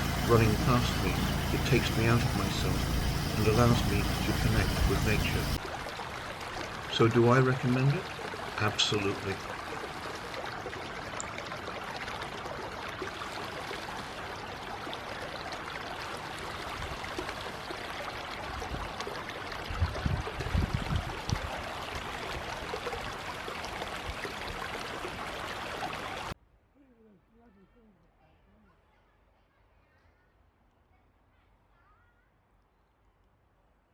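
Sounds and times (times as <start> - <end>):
river water rushing: 0.0 - 19.7, 21.1 - 26.3.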